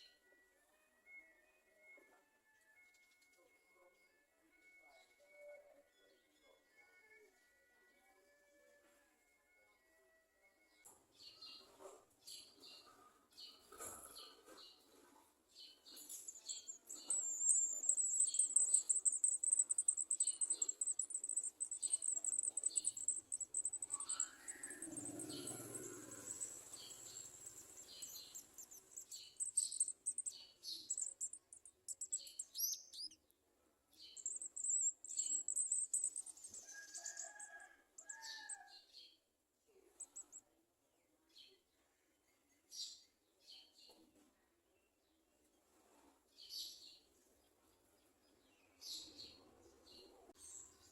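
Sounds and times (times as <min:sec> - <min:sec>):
birds chirping and trilling: 0:15.6 - 0:33.2, 0:34.0 - 0:38.8.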